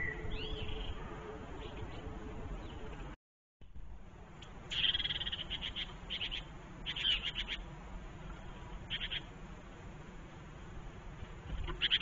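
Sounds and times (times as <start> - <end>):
songbirds calling: 0.0 - 3.2, 4.4 - 9.8, 11.1 - 12.0.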